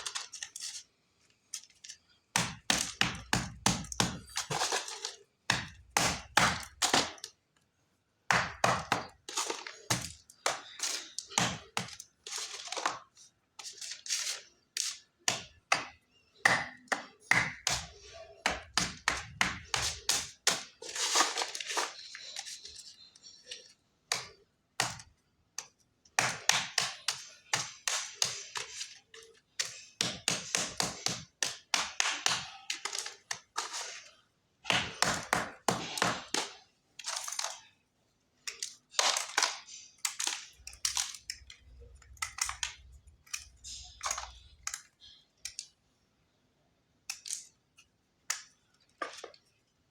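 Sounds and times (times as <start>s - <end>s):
chalk crunching and cracking: 1.5s - 7.3s, 8.4s - 15.9s, 17.2s - 25.0s.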